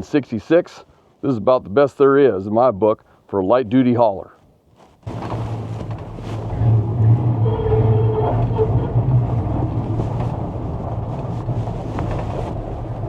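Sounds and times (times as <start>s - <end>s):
engine low drone: 5.1s - 13.0s.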